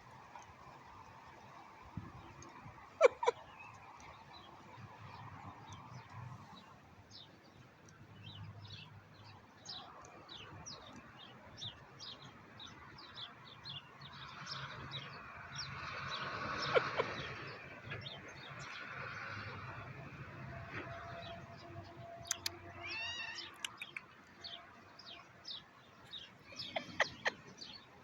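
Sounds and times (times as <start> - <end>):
bird chirping: 21.2 - 28.0.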